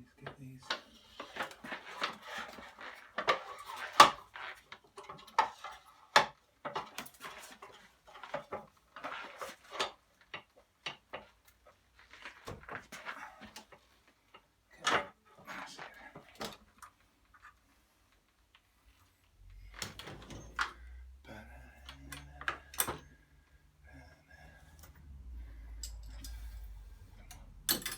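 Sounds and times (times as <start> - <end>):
metallic clinks of tools and bolts: 25.8 - 27.9.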